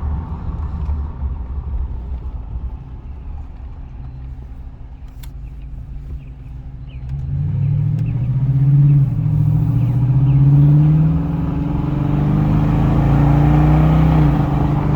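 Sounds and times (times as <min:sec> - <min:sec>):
pickup truck engine revving: 0:07.0 - 0:14.9.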